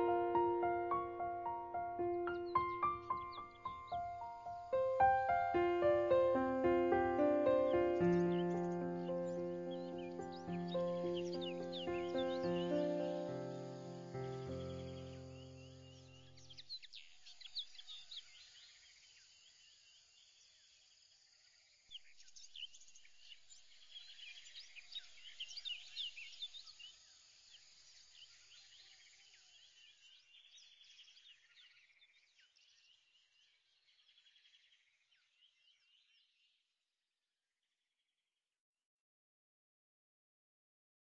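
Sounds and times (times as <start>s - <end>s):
birds chirping: 0.0s - 18.4s.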